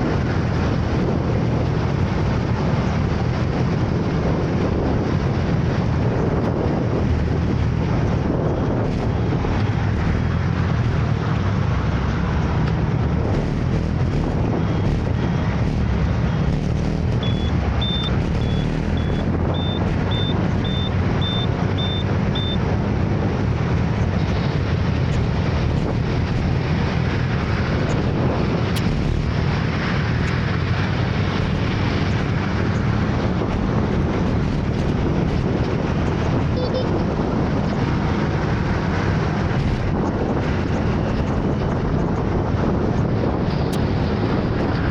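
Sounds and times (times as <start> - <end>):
wind on microphone: 0.0 - 44.9
scooter engine: 13.0 - 22.6
short high beeps: 17.2 - 22.6.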